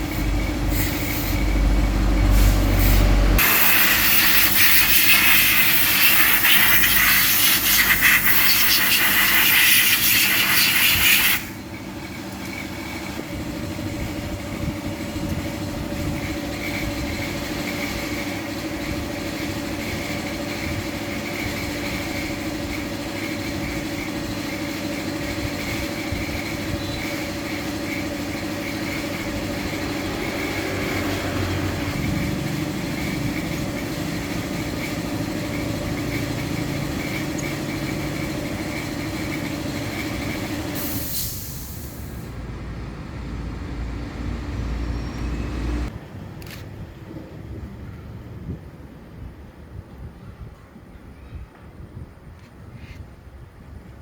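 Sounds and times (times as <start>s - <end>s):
pressurized air hiss: 0.0s - 1.6s, 2.2s - 11.6s, 40.8s - 42.4s
mechanical hum: 0.0s - 54.0s.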